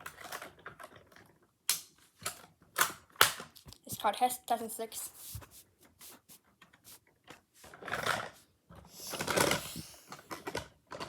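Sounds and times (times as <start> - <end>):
plastic toy truck clicks and knocks: 0.0 - 3.8, 7.3 - 11.0
rustling: 5.0 - 7.8.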